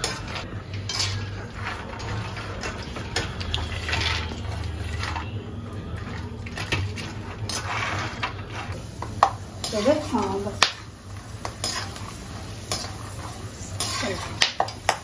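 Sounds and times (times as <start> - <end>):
almonds sizzling in oil: 6.3 - 15.0.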